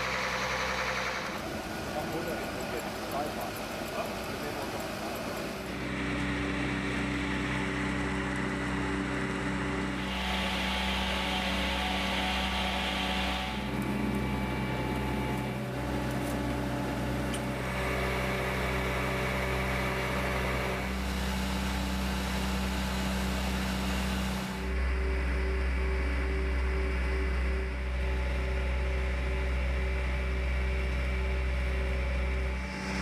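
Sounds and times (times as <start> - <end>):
truck engine humming: 0.0 - 33.0.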